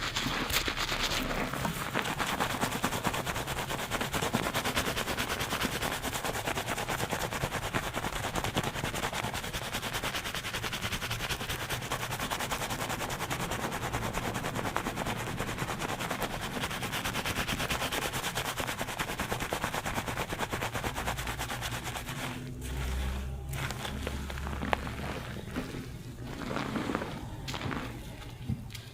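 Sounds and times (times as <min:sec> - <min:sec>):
fingers scrubbing lathered scalp: 0:00.0 - 0:28.3.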